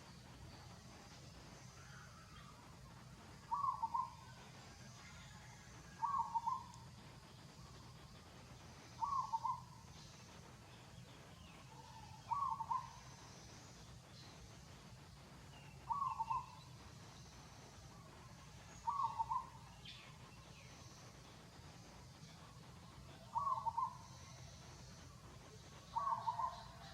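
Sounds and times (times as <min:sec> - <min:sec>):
bird calling pulsing notes: 0:03.4 - 0:04.4, 0:06.0 - 0:06.8, 0:09.0 - 0:10.1, 0:11.0 - 0:13.2, 0:15.6 - 0:16.7, 0:18.7 - 0:21.0, 0:23.2 - 0:24.9, 0:25.9 - 0:26.9.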